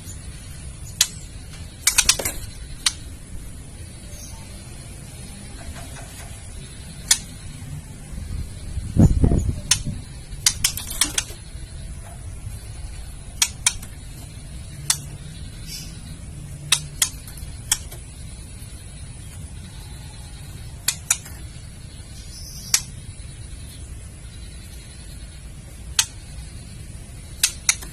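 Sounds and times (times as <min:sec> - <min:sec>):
bird clicking calls: 0:00.9 - 0:03.1, 0:05.6 - 0:07.5, 0:09.5 - 0:11.5, 0:13.4 - 0:18.2, 0:20.8 - 0:21.5, 0:22.6 - 0:23.0, 0:25.9 - 0:26.5, 0:27.2 - 0:27.9.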